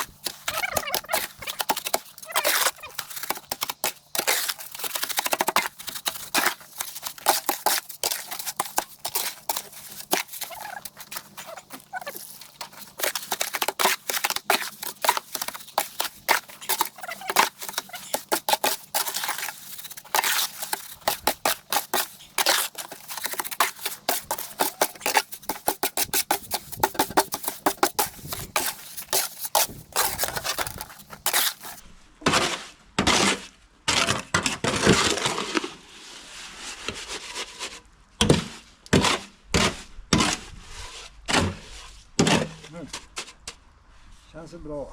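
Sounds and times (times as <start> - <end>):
hand tool scraping soil and concrete: 0.0 - 35.8.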